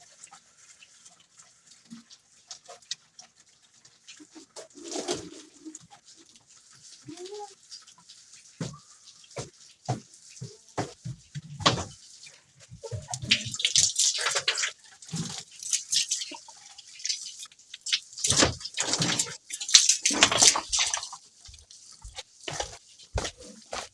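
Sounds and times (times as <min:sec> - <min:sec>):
water splashing and dripping: 0:00.0 - 0:23.9.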